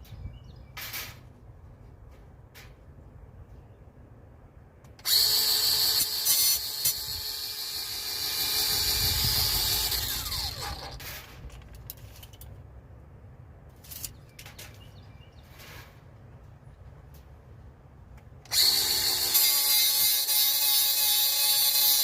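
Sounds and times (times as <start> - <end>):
power tool whining: 5.0 - 11.1, 18.5 - 22.0.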